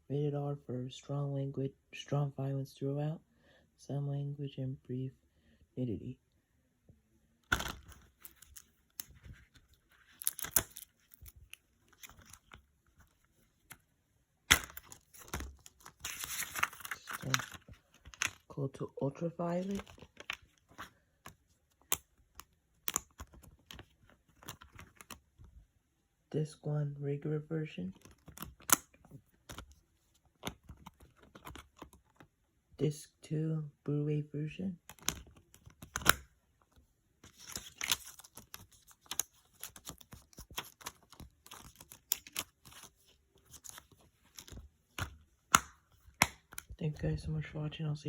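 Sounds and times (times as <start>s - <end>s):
plastic case clicks and rustles: 7.4s - 13.8s, 14.5s - 18.5s, 19.7s - 25.2s, 28.0s - 32.3s, 34.8s - 36.3s, 37.3s - 46.8s
plastic case snaps: 14.5s - 15.5s, 45.0s - 46.7s
plastic case clicking: 43.6s - 46.7s.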